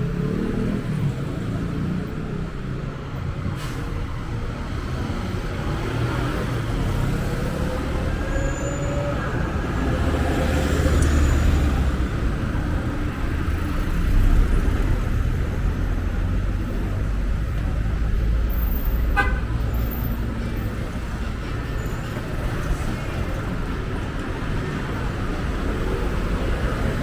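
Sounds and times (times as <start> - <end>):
passing cars rumbling: 0.0 - 27.0
car horn toot: 19.2 - 19.6.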